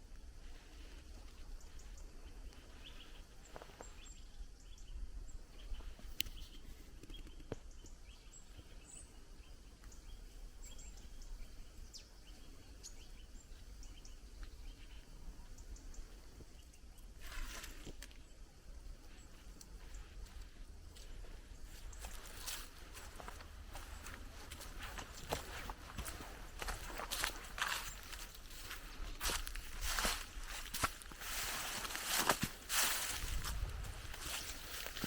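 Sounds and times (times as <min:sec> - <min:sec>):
steady low rumble: 0:32.9 - 0:35.0.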